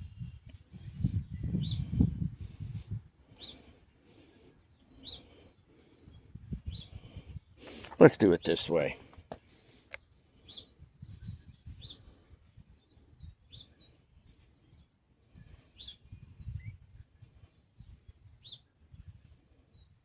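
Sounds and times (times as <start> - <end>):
bird chirps: 2.9 - 7.0, 9.9 - 20.0.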